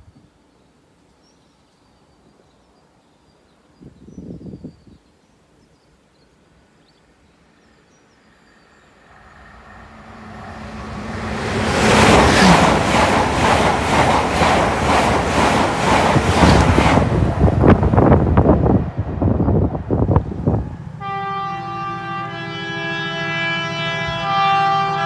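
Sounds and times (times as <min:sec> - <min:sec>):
train passing at speed: 0:08.3 - 0:25.0.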